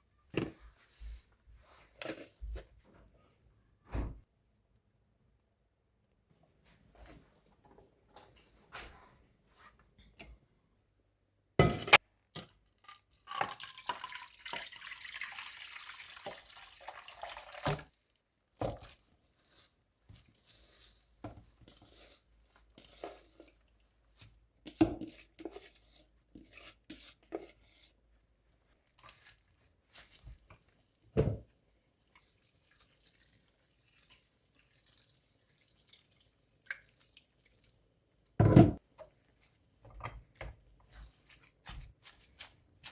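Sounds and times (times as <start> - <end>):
kitchen water running: 13.2 - 18.0, 32.0 - 37.8
knocks and clatter in a sink: 38.4 - 38.8.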